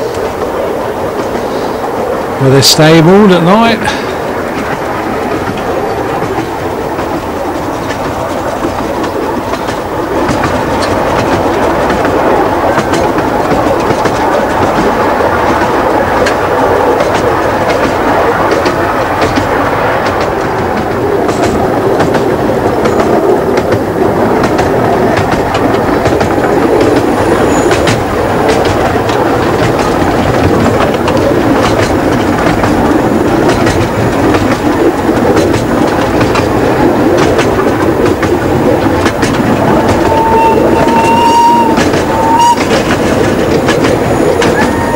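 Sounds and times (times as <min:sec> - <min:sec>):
train wheels rumbling: 0:00.0 - 0:44.9
wheels clicking over rail joints: 0:00.0 - 0:44.9.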